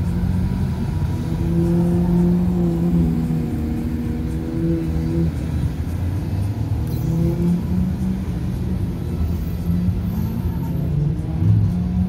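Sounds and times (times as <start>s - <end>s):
car engines at low revs: 0.0s - 12.0s.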